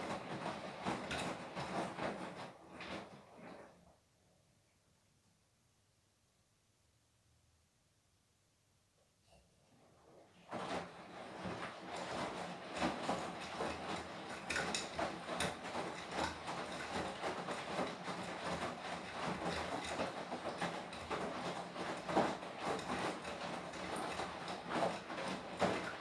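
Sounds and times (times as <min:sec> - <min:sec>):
laundry tumbling in washing machine: 0:00.0 - 0:04.1, 0:09.6 - 0:26.0
washing machine motor hum: 0:00.0 - 0:04.1, 0:09.7 - 0:26.0.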